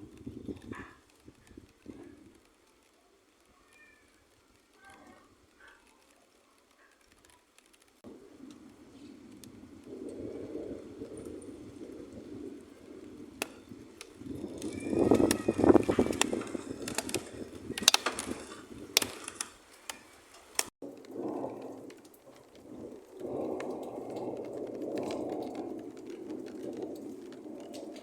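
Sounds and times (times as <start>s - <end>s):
thunder crackles: 8.0s - 28.0s
thunder rumbling: 8.1s - 19.5s, 20.8s - 28.0s.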